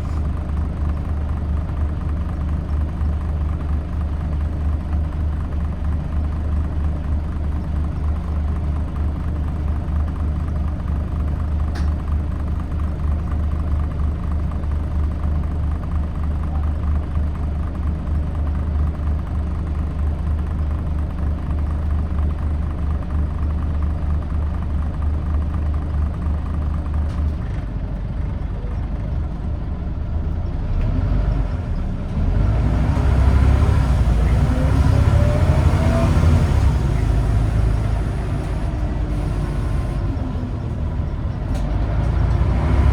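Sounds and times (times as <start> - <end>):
bus diesel engine humming: 0.0 - 42.9.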